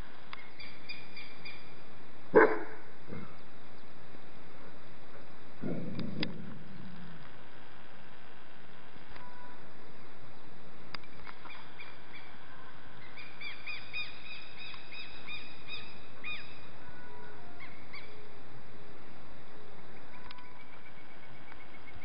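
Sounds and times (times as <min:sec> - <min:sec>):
steady outdoor hiss: 0:00.0 - 0:22.0
birds chirping: 0:00.3 - 0:04.2, 0:10.3 - 0:18.3
bird trill: 0:13.0 - 0:18.2.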